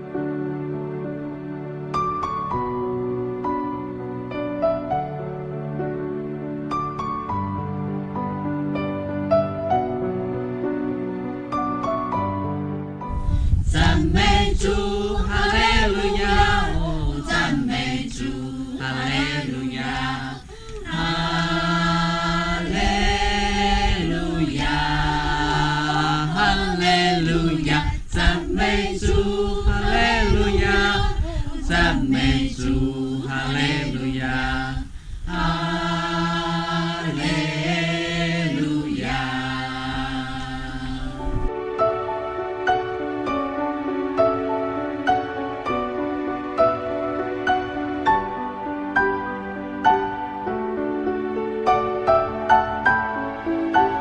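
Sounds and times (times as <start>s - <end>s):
choir singing: 13.6s - 41.6s.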